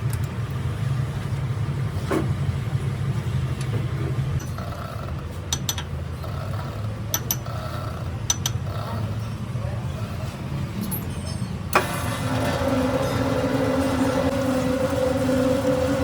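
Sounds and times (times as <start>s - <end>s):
lathe humming: 11.8s - 16.0s.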